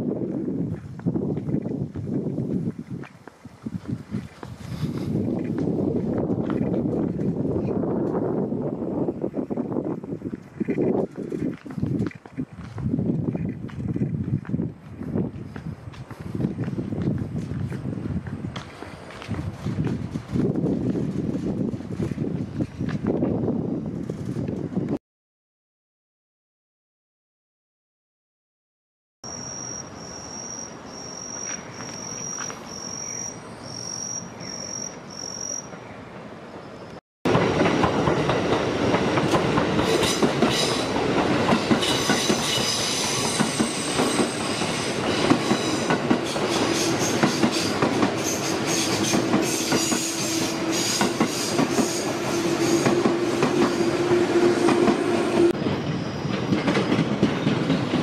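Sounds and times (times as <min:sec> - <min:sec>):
electric train passing: 0:29.3 - 0:58.0.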